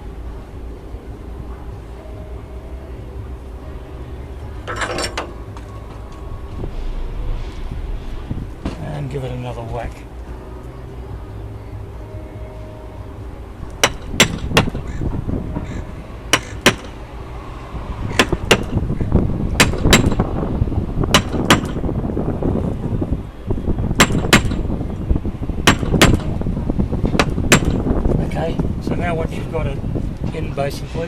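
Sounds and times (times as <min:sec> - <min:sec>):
mallet striking caulking iron: 0:13.8 - 0:14.8, 0:16.3 - 0:17.0, 0:18.2 - 0:18.7, 0:21.2 - 0:21.8, 0:24.0 - 0:24.6, 0:25.7 - 0:26.3, 0:27.2 - 0:27.8.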